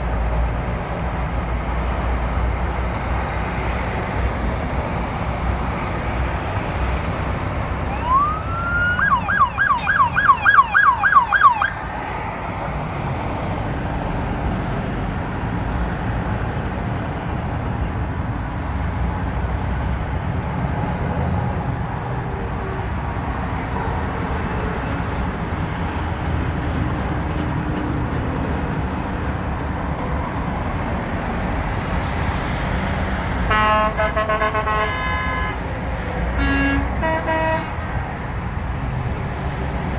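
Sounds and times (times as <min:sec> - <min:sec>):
road traffic rumble: 0:00.0 - 0:39.9
emergency vehicle siren: 0:02.4 - 0:13.6
vehicle horn: 0:33.5 - 0:35.7, 0:36.4 - 0:37.8.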